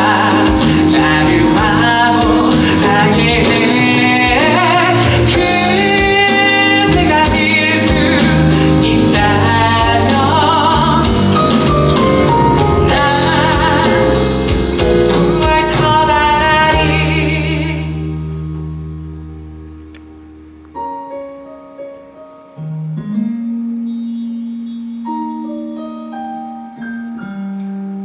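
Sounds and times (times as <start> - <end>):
person singing with vibrato: 0.0 - 18.5
instrumental accompaniment: 0.0 - 28.0.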